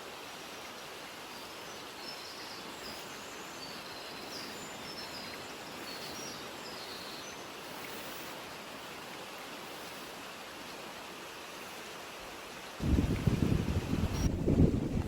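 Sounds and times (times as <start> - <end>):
natural background hiss: 0.0 - 15.0.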